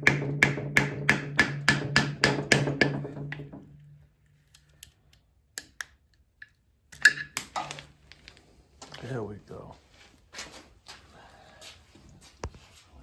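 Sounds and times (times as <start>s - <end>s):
hammer striking metal: 0.0s - 3.6s.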